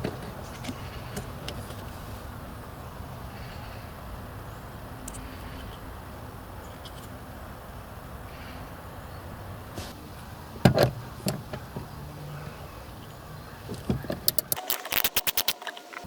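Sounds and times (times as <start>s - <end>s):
plastic trim clicks: 14.2s - 15.8s.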